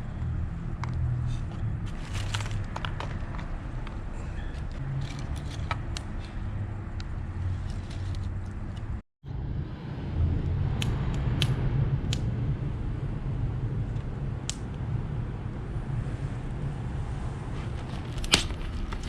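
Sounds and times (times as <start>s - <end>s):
campfire rumble: 9.4s - 19.0s.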